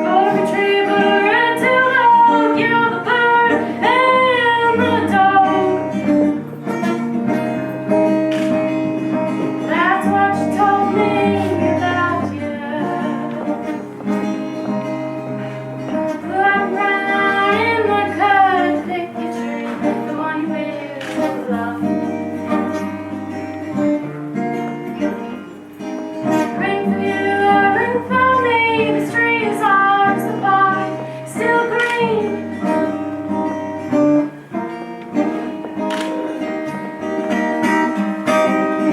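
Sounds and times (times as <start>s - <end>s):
woman singing slow song: 0.0s - 6.2s, 9.6s - 13.9s, 15.9s - 23.0s, 26.2s - 33.1s
plucked acoustic guitar: 0.0s - 38.9s.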